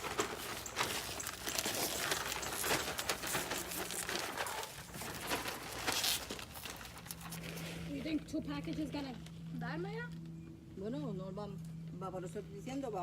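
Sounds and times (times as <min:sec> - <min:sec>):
scratchy rustling and crinkling: 0:00.0 - 0:10.2.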